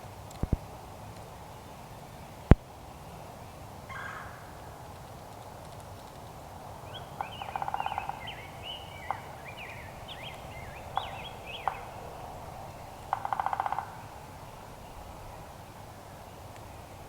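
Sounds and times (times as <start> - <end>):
high twittering chirps: 7.2 - 14.8
animal rattling calls: 10.2 - 14.2.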